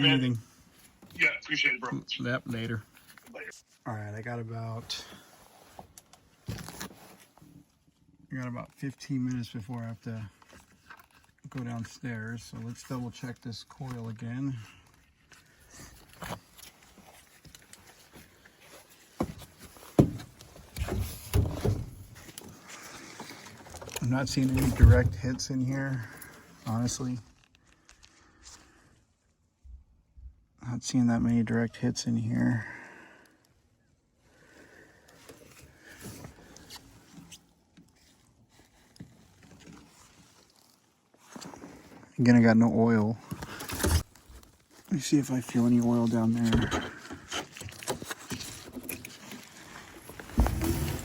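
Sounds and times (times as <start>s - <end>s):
handling knocks and clunks: 19.0s - 25.6s, 46.4s - 51.0s
rustling: 47.5s - 51.0s.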